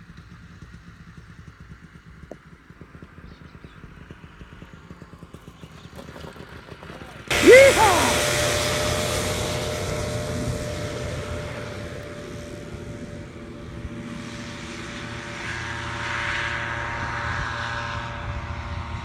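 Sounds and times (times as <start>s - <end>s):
paramotor engine and propeller: 8.1s - 19.0s.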